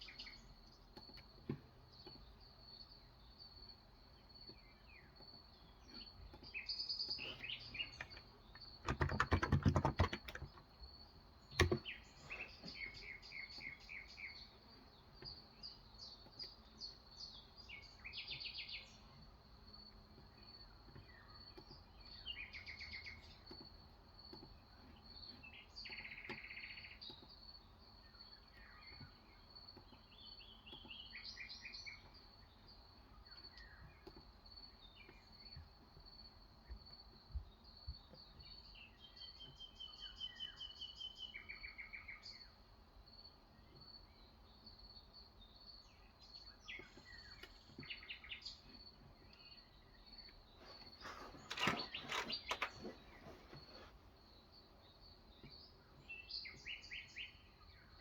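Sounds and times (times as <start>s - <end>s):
birds chirping: 0.0s - 58.0s
keyboard typing: 7.9s - 10.6s, 11.6s - 11.8s.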